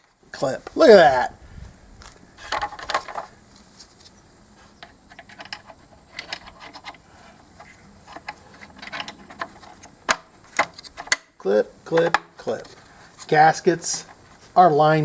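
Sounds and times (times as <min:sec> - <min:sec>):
plastic parts clicking: 0:02.4 - 0:03.3, 0:04.8 - 0:07.0, 0:07.6 - 0:11.3, 0:11.9 - 0:13.3.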